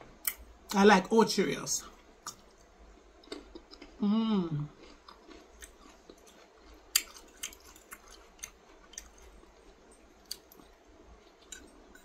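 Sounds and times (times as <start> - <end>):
chewing food: 2.2 - 4.0, 4.6 - 12.0.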